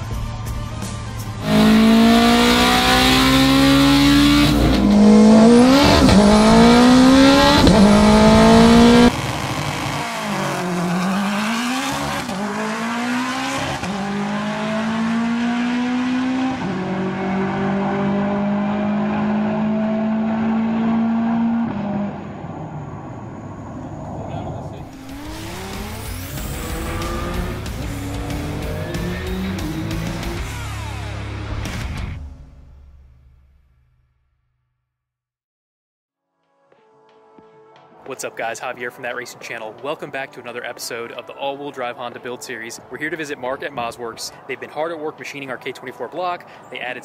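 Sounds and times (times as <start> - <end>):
car engine at full throttle: 1.2 - 32.8.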